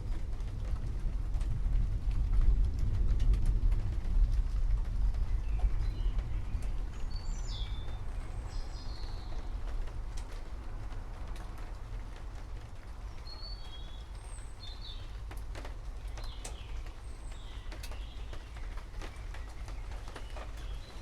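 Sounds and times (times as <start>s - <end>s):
low continuous rumble: 0.0s - 21.0s
steady rain: 0.0s - 21.0s
water drips tapping: 13.1s - 21.0s.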